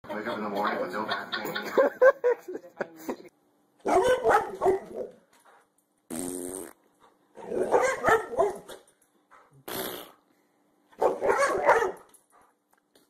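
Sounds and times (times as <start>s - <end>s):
dog barking and growling: 3.8s - 5.2s, 7.3s - 8.9s, 11.0s - 12.1s.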